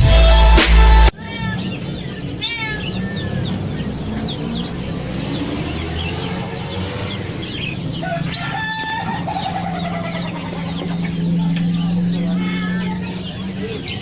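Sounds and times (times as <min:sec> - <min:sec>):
small birds chirping: 0:01.1 - 0:14.0
chickens clucking: 0:05.8 - 0:14.0
rooster crowing: 0:07.9 - 0:10.4.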